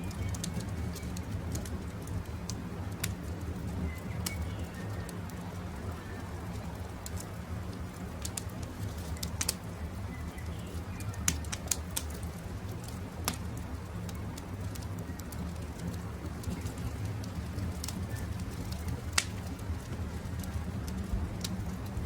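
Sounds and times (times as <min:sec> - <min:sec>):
wood fire crackling: 0:00.0 - 0:22.0
birds chirping: 0:03.6 - 0:05.2, 0:08.9 - 0:11.6.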